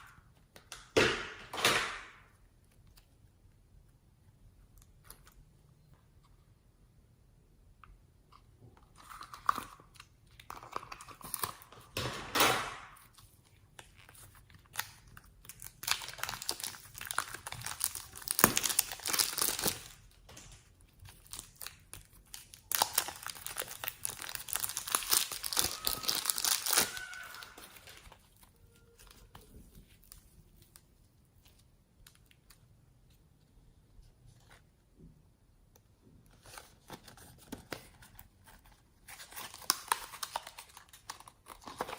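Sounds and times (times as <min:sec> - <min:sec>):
slime squeezed by hand crackling: 0:22.3 - 0:28.2.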